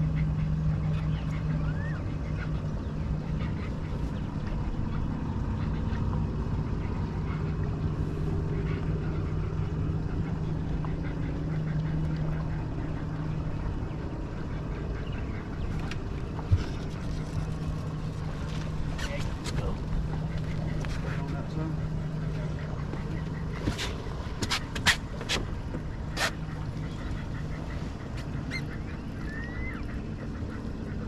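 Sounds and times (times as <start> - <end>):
boat motor running: 0.0 - 31.0
rumbling water wash: 0.0 - 31.0.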